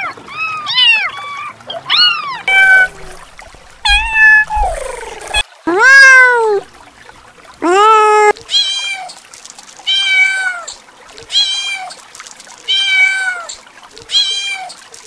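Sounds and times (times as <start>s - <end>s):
kitten meowing: 1.9s - 6.7s, 7.6s - 9.0s.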